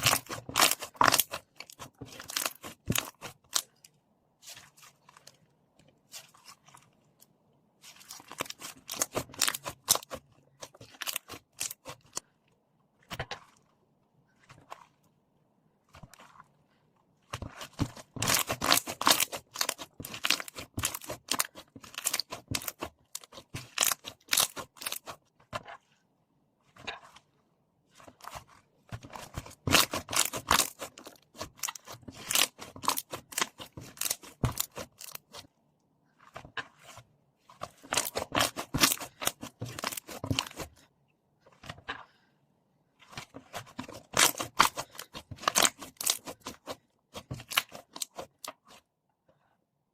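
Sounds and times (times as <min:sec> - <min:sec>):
slime crackling and popping: 0:00.0 - 0:03.6, 0:17.6 - 0:25.2, 0:29.1 - 0:35.4.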